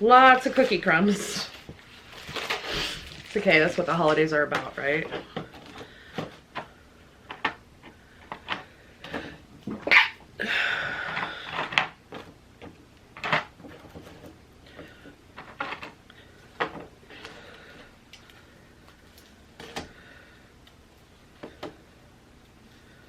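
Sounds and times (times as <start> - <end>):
packaging rustling: 0.2 - 6.6.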